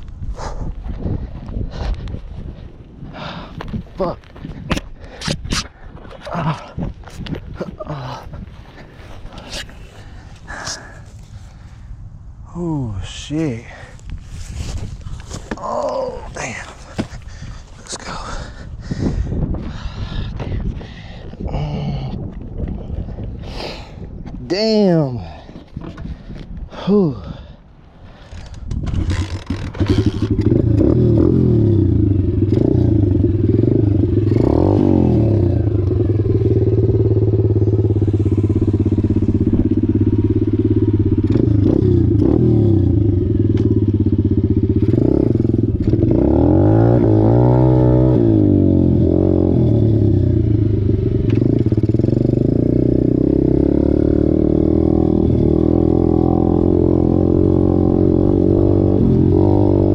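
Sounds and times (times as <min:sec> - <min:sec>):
dirt bike engine revving: 0:28.9 - 0:59.9.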